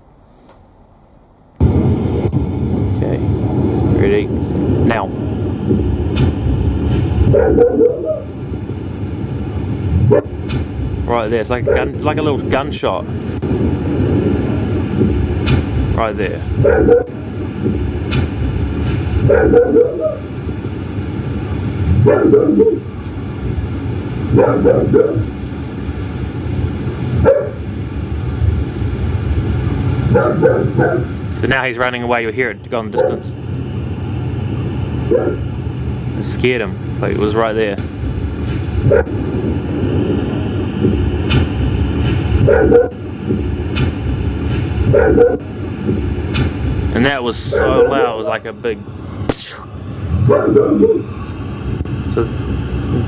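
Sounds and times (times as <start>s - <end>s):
low hum and hiss: 0.0s - 53.0s
dog barking: 7.3s - 8.3s, 16.6s - 17.1s, 19.3s - 20.2s, 22.0s - 22.8s, 24.4s - 25.3s, 27.2s - 27.6s, 30.1s - 31.1s, 33.0s - 33.3s, 35.1s - 35.4s, 42.4s - 43.0s, 44.9s - 45.4s, 47.5s - 48.1s, 50.2s - 51.1s
loud click: 49.3s - 49.6s.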